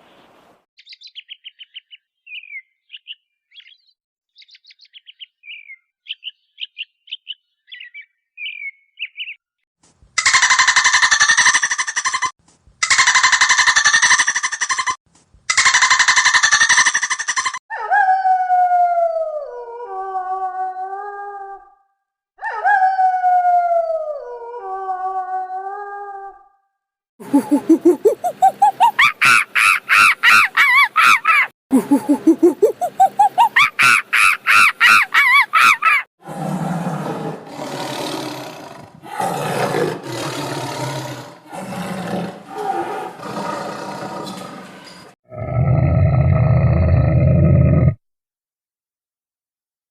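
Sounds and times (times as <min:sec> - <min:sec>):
steady-pitched animal call: 0:10.2 - 0:18.0, 0:27.2 - 0:48.0
dog howling: 0:17.7 - 0:21.7
big cat roaring and growling: 0:36.2 - 0:48.0.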